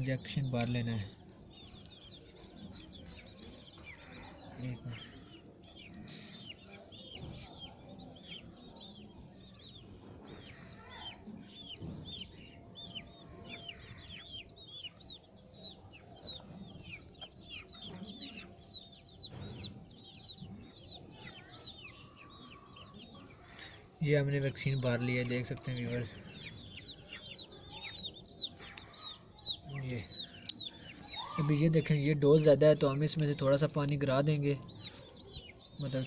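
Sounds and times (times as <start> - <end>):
chicks peeping: 0.0 - 36.0.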